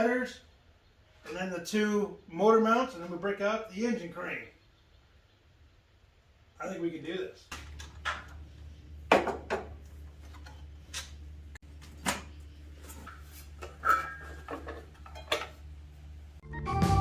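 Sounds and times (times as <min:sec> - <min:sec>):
low steady hum: 0:04.4 - 0:16.4
organ music: 0:16.4 - 0:17.0.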